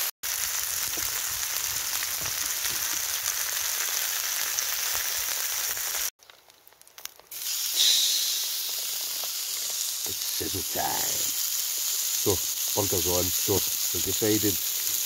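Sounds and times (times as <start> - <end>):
food sizzling in a pan: 0.0 - 6.1, 7.0 - 15.0.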